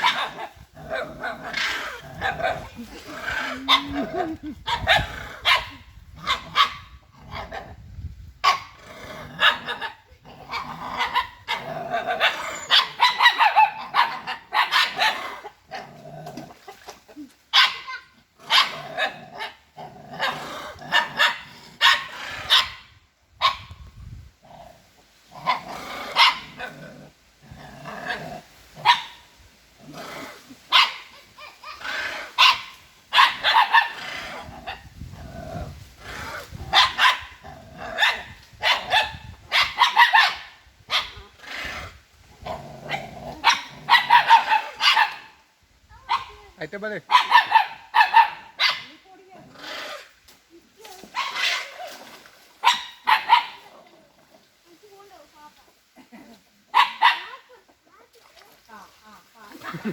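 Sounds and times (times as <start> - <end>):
dog barking: 0.0 - 0.5, 3.6 - 4.0, 4.7 - 6.9, 12.2 - 15.2, 17.5 - 19.6, 20.2 - 22.8, 23.4 - 23.7, 26.2 - 26.6, 28.8 - 29.2, 30.7 - 31.1, 32.4 - 34.0, 36.7 - 37.4, 38.0 - 41.2, 42.9 - 45.3, 47.1 - 49.0, 52.6 - 53.7, 56.7 - 57.5.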